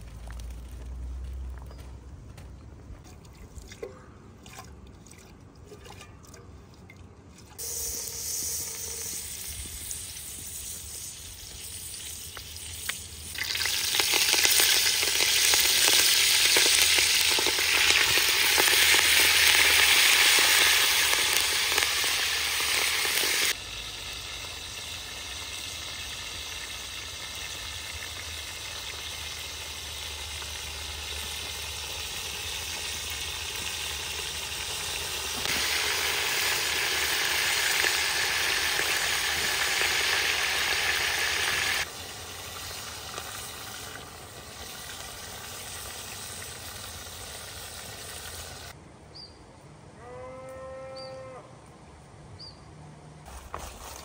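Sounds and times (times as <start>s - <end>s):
food sizzling in hot oil: 7.6s - 48.8s.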